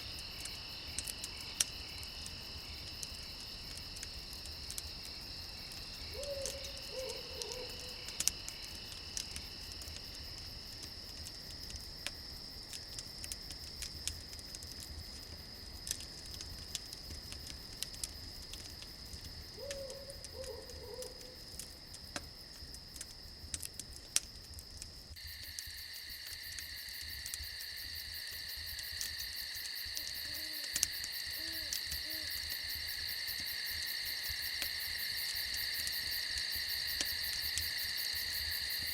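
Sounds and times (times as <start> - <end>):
campfire crackling: 0.0 - 38.9
crickets chirring: 0.0 - 38.9
owl hooting: 6.1 - 7.9, 19.6 - 21.4.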